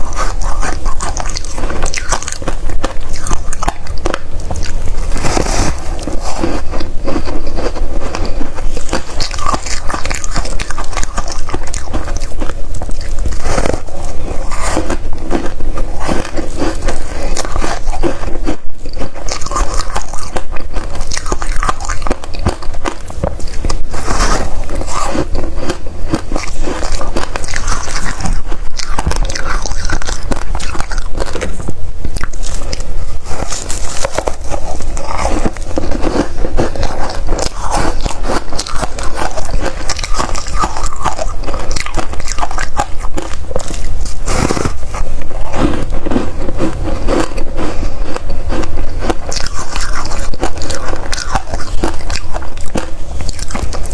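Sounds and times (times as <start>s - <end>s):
chewing crunchy frost: 0.0s - 53.9s.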